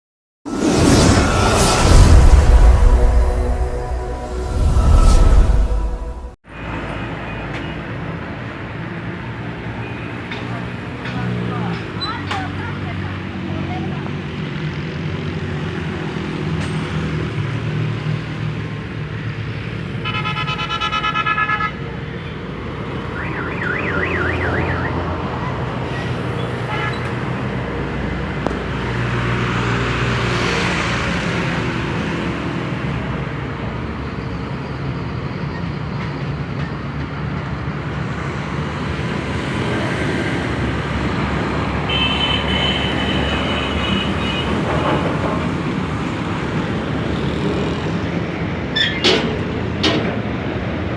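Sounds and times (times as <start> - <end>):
warbling horn tone: 0.6 - 6.4, 23.0 - 25.1
horn sounding: 0.8 - 6.4, 22.9 - 25.2.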